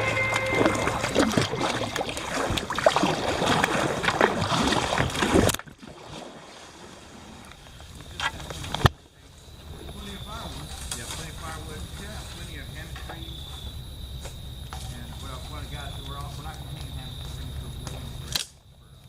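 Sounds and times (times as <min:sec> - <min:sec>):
paddle water splashing: 0:00.0 - 0:13.3.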